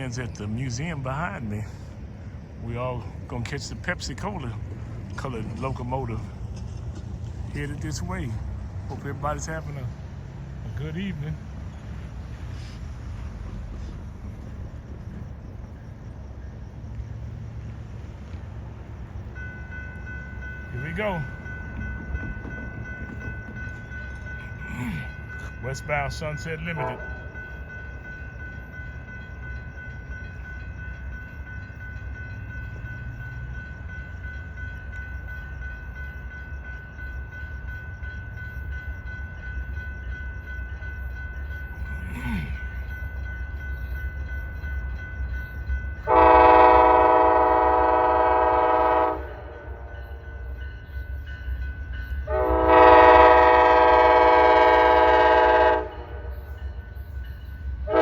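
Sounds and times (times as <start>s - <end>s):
train rumble: 0.0s - 58.0s
locomotive air horn blasts: 26.7s - 27.2s, 46.1s - 49.8s, 52.3s - 56.3s.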